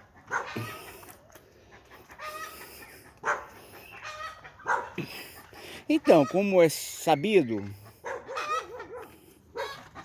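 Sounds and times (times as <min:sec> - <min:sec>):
dog barking: 0:00.2 - 0:00.7, 0:03.2 - 0:03.6, 0:04.6 - 0:05.0, 0:08.0 - 0:09.9.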